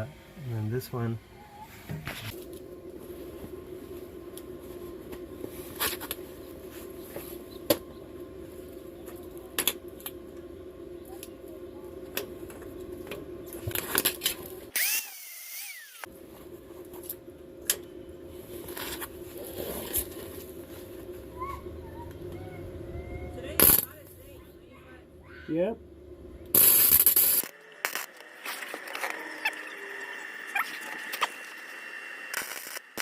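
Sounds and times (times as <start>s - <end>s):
small motor humming: 13.5s - 16.1s, 26.5s - 33.0s.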